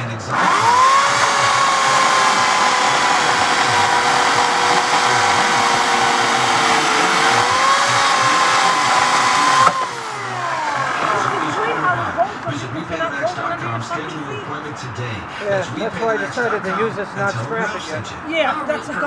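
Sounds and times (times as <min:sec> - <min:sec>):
electric chainsaw whining: 0:00.0 - 0:12.2.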